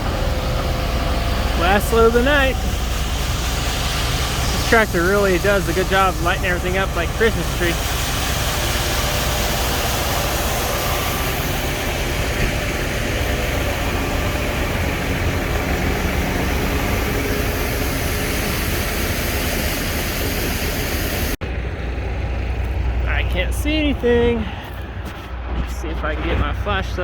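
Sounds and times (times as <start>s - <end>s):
tractor engine running: 0.0s - 27.0s
even hiss: 1.0s - 21.4s.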